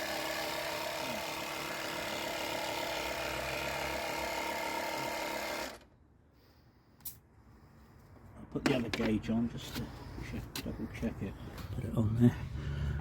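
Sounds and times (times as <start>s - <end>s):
air compressor running: 0.0s - 5.8s.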